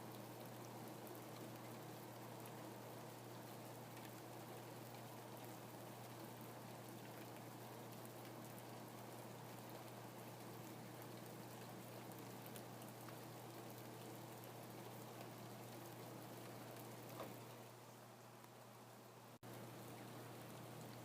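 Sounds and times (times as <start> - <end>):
faint rain falling: 0.0 - 21.0.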